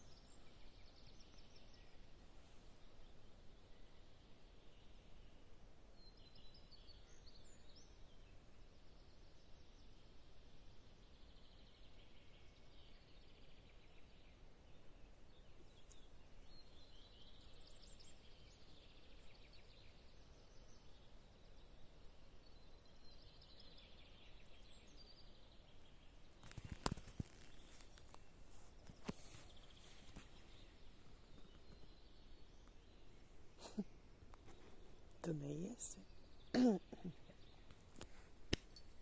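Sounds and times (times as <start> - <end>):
small birds trilling: 22.5 - 39.0.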